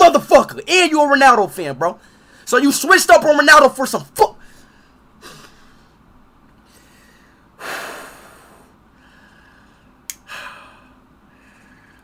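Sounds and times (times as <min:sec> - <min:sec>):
man breathing out through nose: 0:06.7 - 0:12.0.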